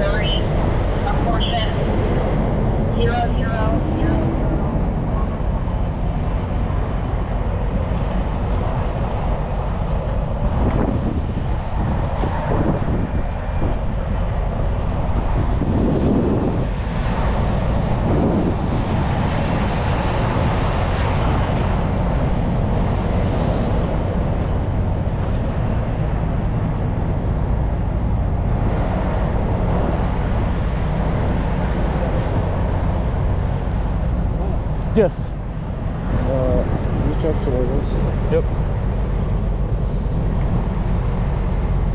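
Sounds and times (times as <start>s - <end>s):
road and wind noise: 0.0s - 41.9s
vehicle engine rumbling: 0.0s - 41.9s.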